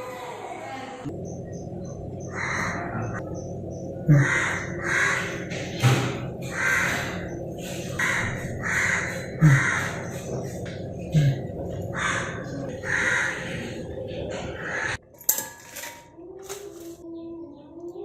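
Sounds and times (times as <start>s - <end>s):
harsh bird calls: 1.1s - 15.0s.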